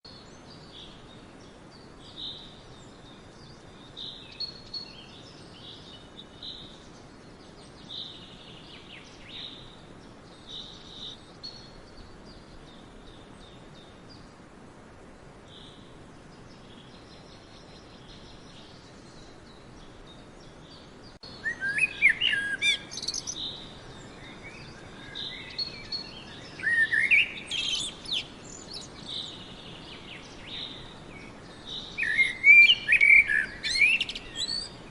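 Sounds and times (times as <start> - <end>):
faint steady hiss: 0.0 - 34.9
bird song with rapid notes: 0.1 - 14.5, 15.5 - 34.9
birds chirping: 15.2 - 34.9.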